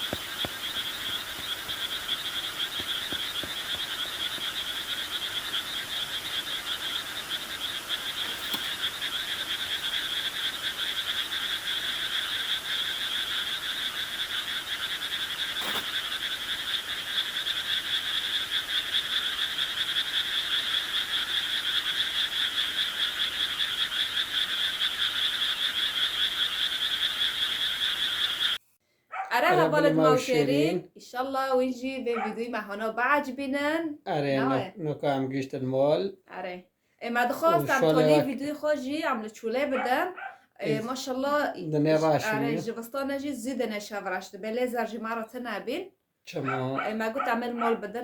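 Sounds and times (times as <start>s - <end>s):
chorus of trilling animals: 0.0s - 28.2s, 32.2s - 32.5s, 37.4s - 38.4s, 39.7s - 41.0s, 41.9s - 42.7s, 46.4s - 48.0s.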